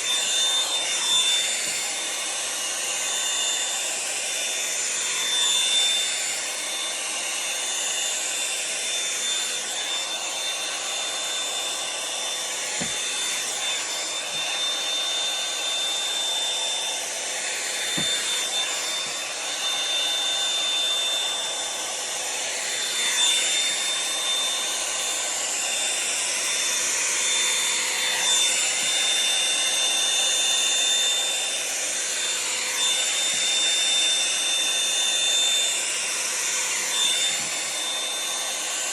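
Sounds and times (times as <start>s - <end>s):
hot-air brush dryer whine: 0.0s - 38.9s.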